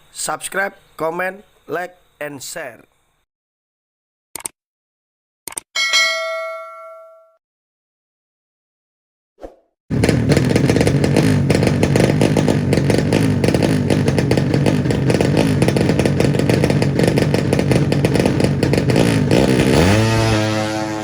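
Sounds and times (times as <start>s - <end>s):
motorcycle engine at high revs: 9.9s - 21.0s.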